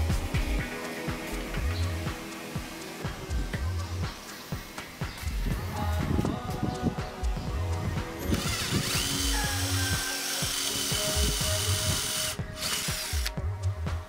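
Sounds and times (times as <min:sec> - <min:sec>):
music with steady beat: 0:00.0 - 0:14.0
cordless drill motor running: 0:08.3 - 0:13.3.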